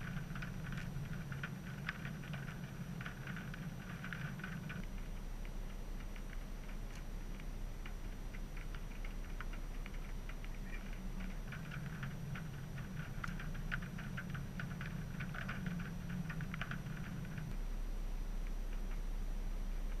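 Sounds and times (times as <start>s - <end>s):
low steady hum: 0.0s - 20.0s
raindrops ticking on surface: 0.0s - 20.0s.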